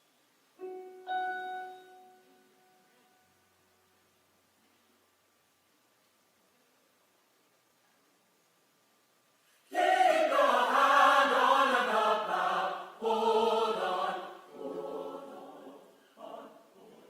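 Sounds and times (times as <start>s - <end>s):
choir singing: 9.7s - 17.0s.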